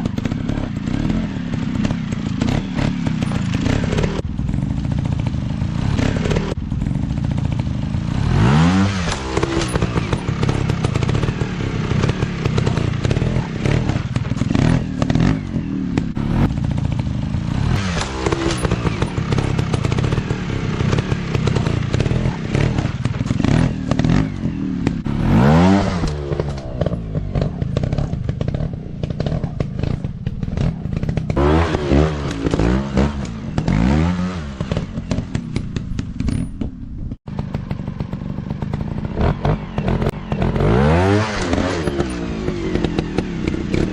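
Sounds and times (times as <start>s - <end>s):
dirt bike engines revving: 0.0s - 36.4s, 37.3s - 43.9s.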